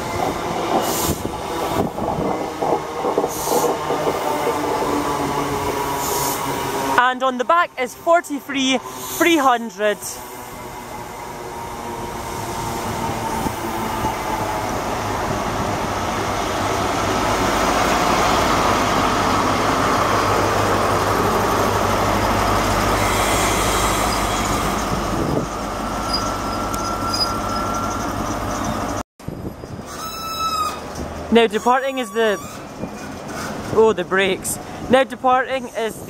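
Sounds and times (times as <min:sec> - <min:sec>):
train wheels on rail: 0:00.0 - 0:09.5, 0:32.4 - 0:34.0
thin high squeal: 0:26.0 - 0:28.8.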